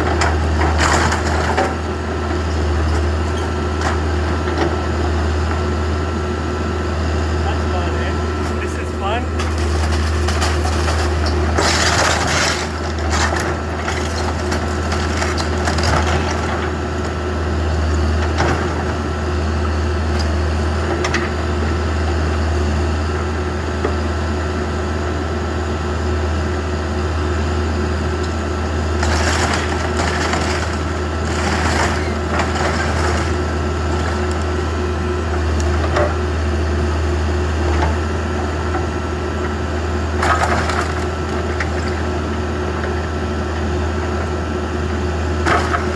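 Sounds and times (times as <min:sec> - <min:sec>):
diesel engine running under load: 0:00.0 - 0:45.9
wood crunching and cracking: 0:09.3 - 0:16.6, 0:29.0 - 0:34.6.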